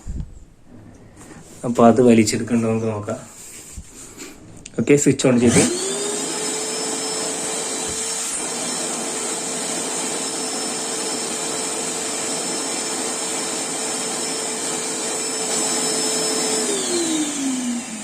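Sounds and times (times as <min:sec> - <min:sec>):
wet and dry vacuum cleaner running: 0:04.0 - 0:18.0.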